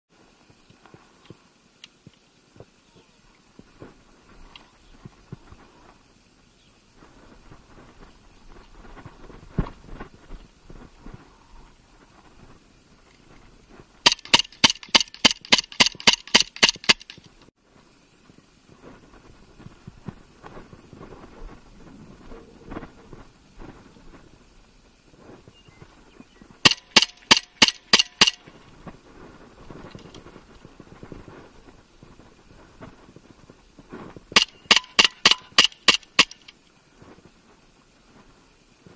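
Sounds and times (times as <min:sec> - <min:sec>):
airsoft pistol shots: 0:14.0 - 0:17.2, 0:26.6 - 0:28.4, 0:34.4 - 0:36.4
sharp crack: 0:14.0 - 0:17.3, 0:34.4 - 0:36.6
faint handling noise: 0:28.3 - 0:34.3.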